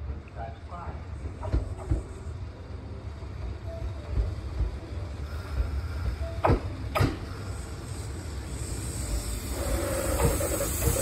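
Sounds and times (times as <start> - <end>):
electric train rumbling: 0.0 - 11.0
wheels clacking over rail joints: 9.5 - 11.0.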